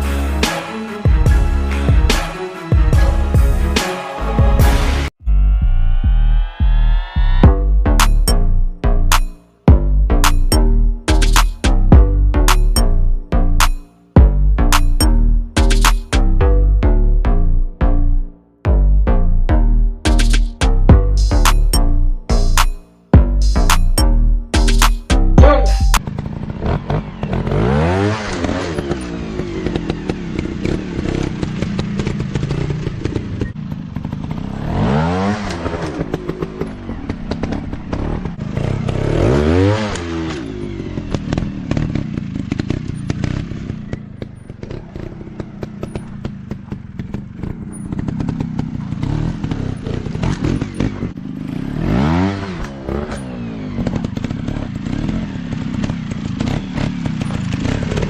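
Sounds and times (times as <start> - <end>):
dirt bike engine revving: 22.2 - 58.0.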